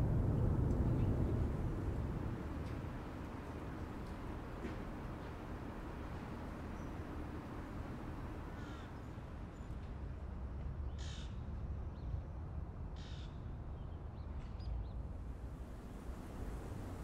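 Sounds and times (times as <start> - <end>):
low outdoor rumble: 0.0 - 9.4, 15.2 - 17.0.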